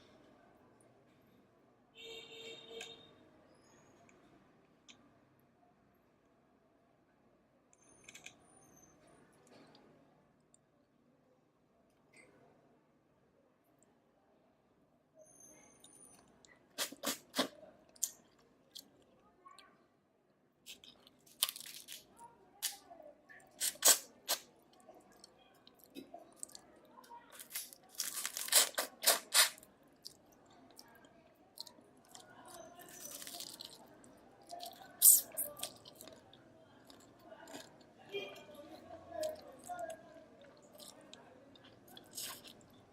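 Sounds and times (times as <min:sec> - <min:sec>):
chewing: 0:20.7 - 0:22.1, 0:23.4 - 0:38.0, 0:39.2 - 0:42.9.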